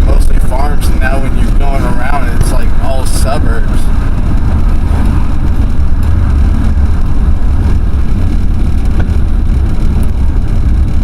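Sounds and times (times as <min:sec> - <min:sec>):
pickup engine and road rumble: 0:00.0 - 0:11.0.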